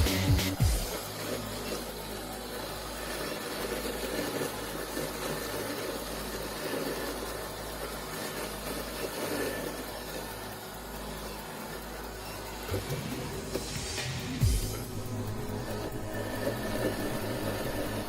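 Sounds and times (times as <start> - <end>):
electronic music with falling sweeps: 0.0 - 18.0
robot lawn mower humming: 0.0 - 18.0.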